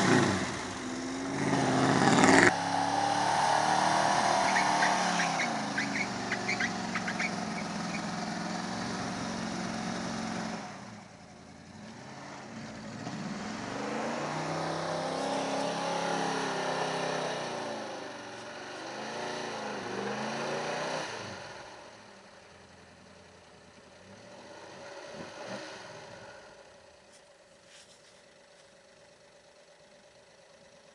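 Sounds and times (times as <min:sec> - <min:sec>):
truck engine revving: 0:00.0 - 0:11.1, 0:11.7 - 0:21.9.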